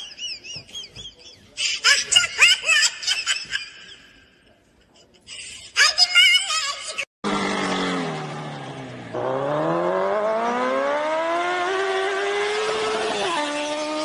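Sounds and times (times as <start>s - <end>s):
vehicle engine accelerating: 7.2s - 14.0s.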